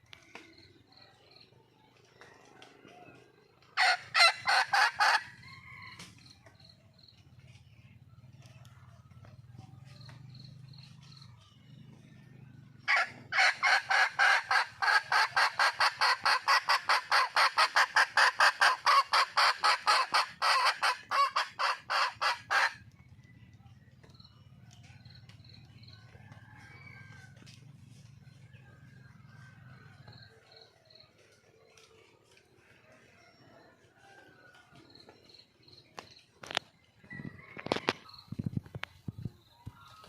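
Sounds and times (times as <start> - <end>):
hen cackling: 3.8 - 5.4, 12.9 - 22.8.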